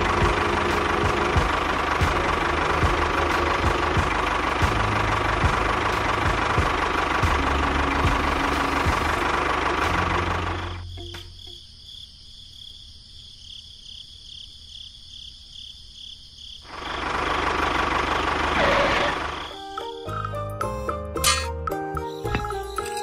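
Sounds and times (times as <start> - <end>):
small tractor engine: 0.0 - 10.9, 16.7 - 19.8
high insect chirping: 10.5 - 17.0, 19.0 - 23.0.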